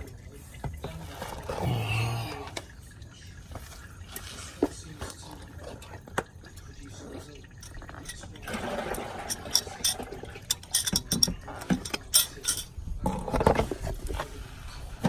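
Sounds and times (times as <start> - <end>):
objects clicking and knocking: 7.5 - 14.3.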